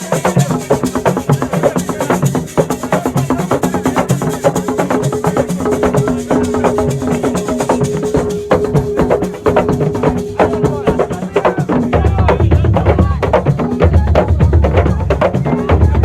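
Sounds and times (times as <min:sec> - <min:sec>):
percussion music with drums: 0:00.0 - 0:16.0.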